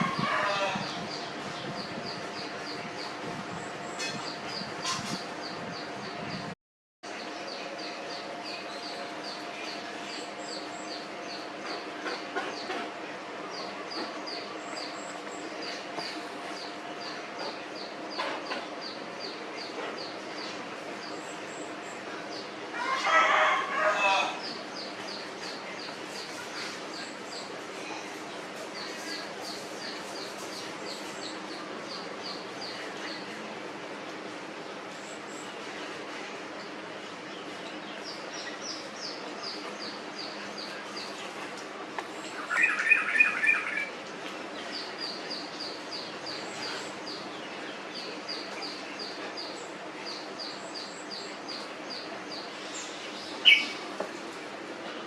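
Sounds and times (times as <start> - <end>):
outdoor background noise: 0.0 - 55.0
steady background noise: 0.0 - 55.0
bird chirping: 42.2 - 43.9, 44.7 - 53.9.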